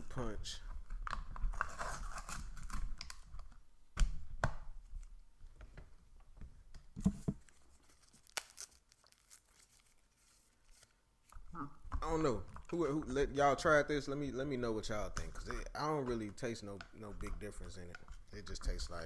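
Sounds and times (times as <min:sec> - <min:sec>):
tearing and crinkling packaging: 0:01.0 - 0:03.4, 0:07.4 - 0:11.4.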